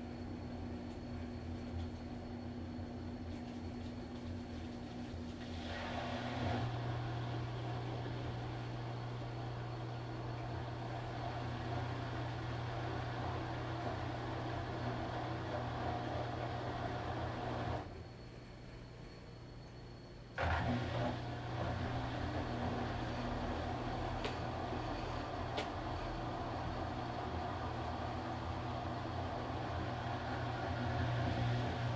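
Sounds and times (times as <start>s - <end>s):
quiet background hum: 0.0s - 31.9s
washing machine motor humming: 20.4s - 31.9s.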